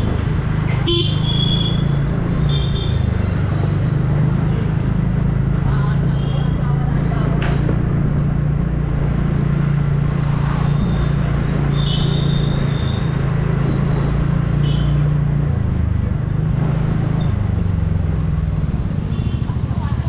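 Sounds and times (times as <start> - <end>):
road and wind noise: 0.0 - 20.0.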